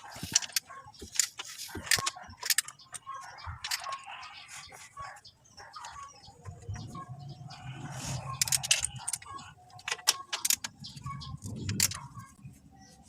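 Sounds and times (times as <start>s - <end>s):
metal tools clinking: 0.0s - 4.2s, 8.0s - 12.2s.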